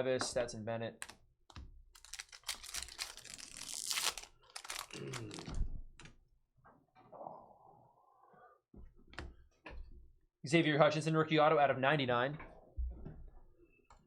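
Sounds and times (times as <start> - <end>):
foil wrappers crinkling and tearing: 2.0 - 5.5.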